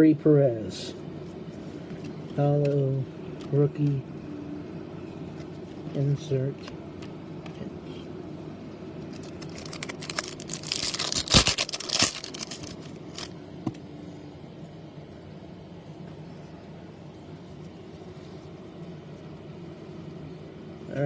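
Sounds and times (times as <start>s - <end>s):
foil wrapper crinkling and tearing: 9.1s - 13.3s.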